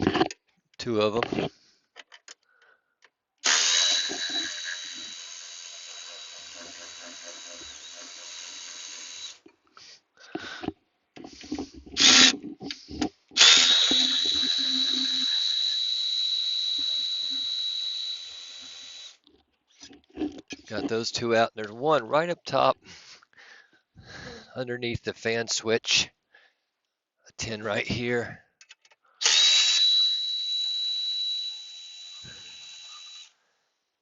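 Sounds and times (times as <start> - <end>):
power driver whine: 3.4 - 9.5, 10.3 - 21.0, 29.2 - 33.4.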